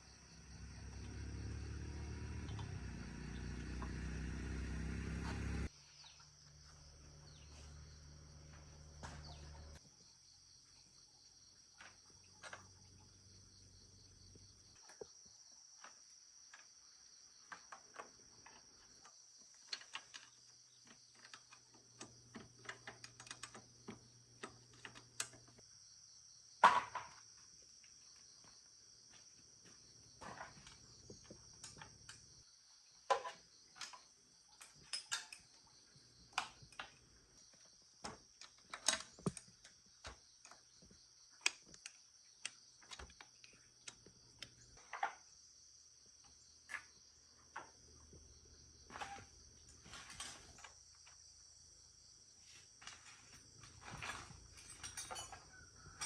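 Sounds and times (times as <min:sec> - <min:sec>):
crickets chirring: 0:00.0 - 0:04.1, 0:05.6 - 0:56.0
loud motor running: 0:00.6 - 0:05.7.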